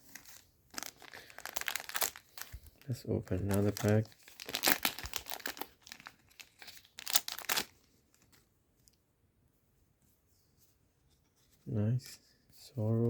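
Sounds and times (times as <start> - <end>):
wrapper being torn and crinkled: 0.0 - 8.3.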